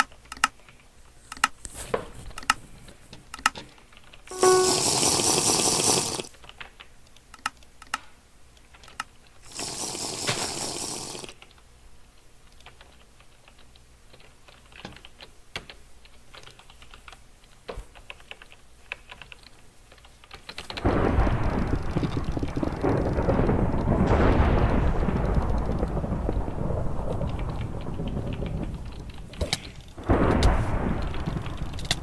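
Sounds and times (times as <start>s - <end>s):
keyboard and mouse clicks: 0.0s - 1.6s
loud hissing noise bursts: 4.3s - 6.3s, 9.4s - 11.4s.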